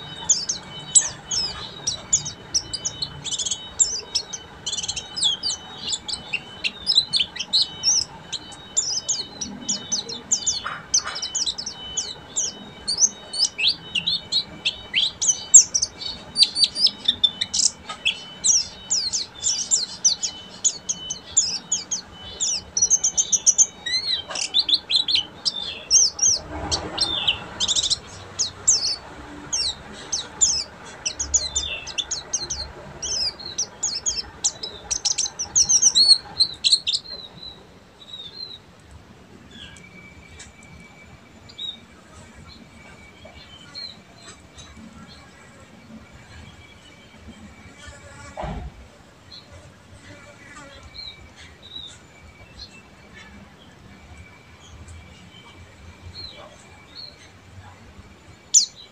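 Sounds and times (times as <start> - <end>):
bird twittering song: 0.0 - 38.6, 58.3 - 58.9.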